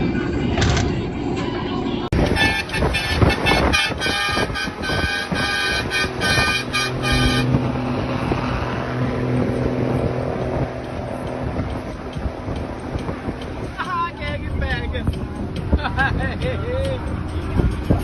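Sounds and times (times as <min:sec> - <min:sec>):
truck engine droning: 0:00.0 - 0:18.0
truck horn short blasts: 0:02.2 - 0:07.9.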